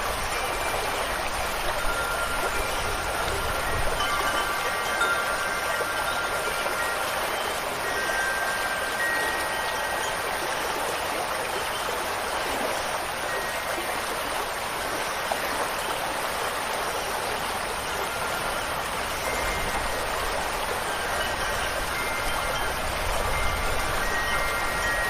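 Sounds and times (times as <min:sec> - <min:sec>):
wind chimes ringing: 0:00.0 - 0:16.2, 0:17.3 - 0:25.0
rushing water: 0:00.0 - 0:25.0.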